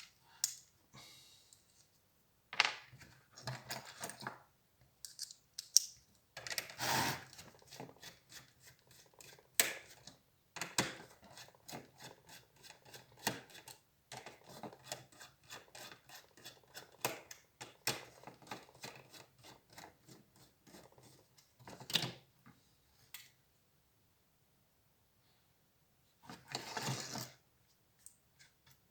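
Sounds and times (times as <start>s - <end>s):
laptop parts clicking and rattling: 5.0s - 6.7s.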